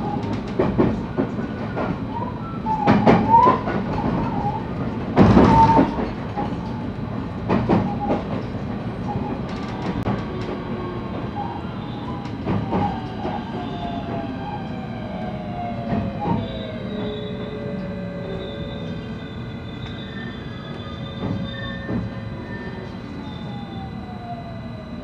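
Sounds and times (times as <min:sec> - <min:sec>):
train interior rumble: 0:00.0 - 0:25.0
train motor whine falling in pitch: 0:12.0 - 0:25.0.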